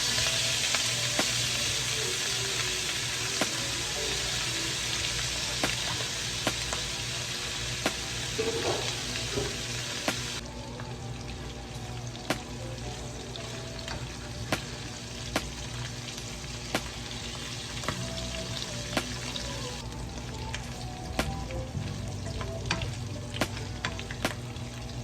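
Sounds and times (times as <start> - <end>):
peppers sizzling in a pan: 0.0 - 25.0
utensil striking pan: 7.8 - 10.4.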